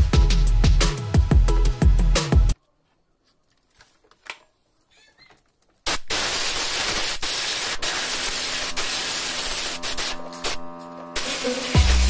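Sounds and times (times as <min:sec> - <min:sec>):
loud static hiss: 0:05.9 - 0:12.0.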